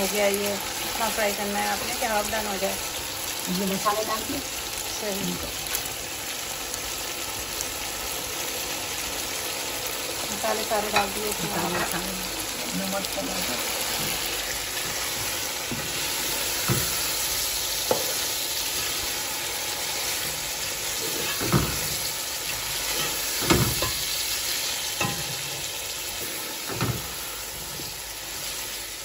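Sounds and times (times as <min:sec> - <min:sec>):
chicken sizzling in oil: 0:00.0 - 0:29.0
spatula scraping a pot: 0:20.0 - 0:24.2.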